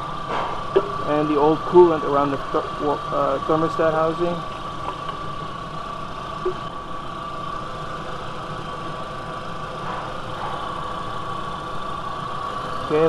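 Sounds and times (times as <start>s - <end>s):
steady high tone: 0.0s - 4.2s
car engine idling: 0.0s - 13.0s.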